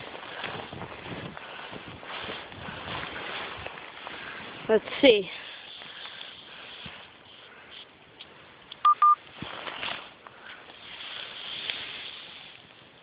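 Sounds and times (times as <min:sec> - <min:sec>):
faint hiss: 0:04.2 - 0:13.0
short electronic beeps: 0:08.8 - 0:09.2.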